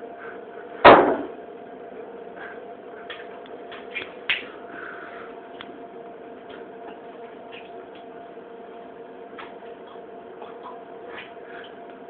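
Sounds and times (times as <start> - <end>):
steady low hum: 0.0 - 12.0
sharp knock: 0.8 - 1.3.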